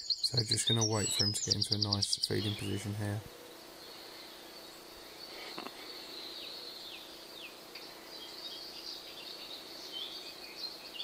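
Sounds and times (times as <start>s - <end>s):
high bird trill: 0.0s - 7.2s
birds chirping: 0.0s - 11.0s.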